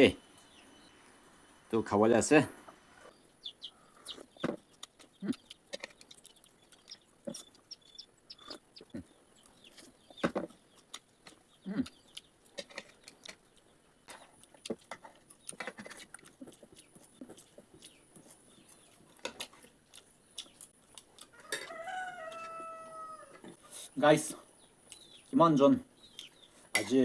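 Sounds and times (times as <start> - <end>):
chicken call: 21.4 - 23.8.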